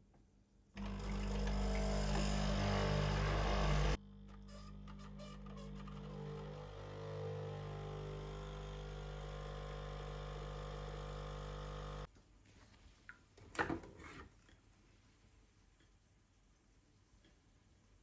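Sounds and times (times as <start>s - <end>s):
electric appliance hum: 0.8s - 12.1s.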